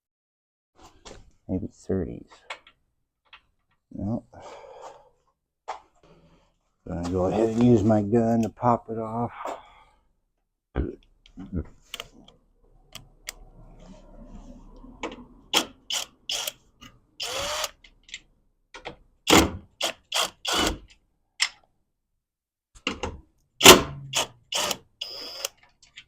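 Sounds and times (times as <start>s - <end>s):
power screw gun bursts: 15.6s - 16.6s, 17.2s - 17.8s, 19.3s - 20.8s, 23.6s - 25.5s.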